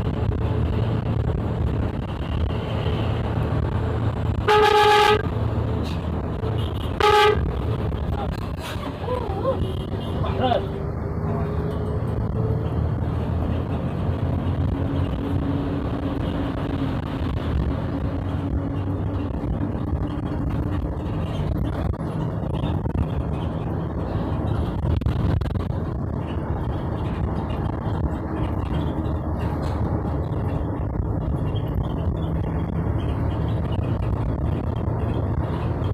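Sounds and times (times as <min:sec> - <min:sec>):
car engine and road noise: 0:00.0 - 0:35.9.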